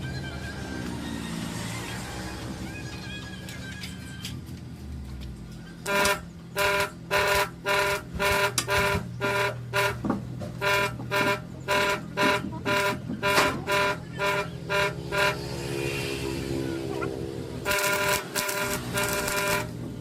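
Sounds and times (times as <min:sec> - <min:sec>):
horn short toots: 0:05.8 - 0:16.3, 0:17.0 - 0:19.8.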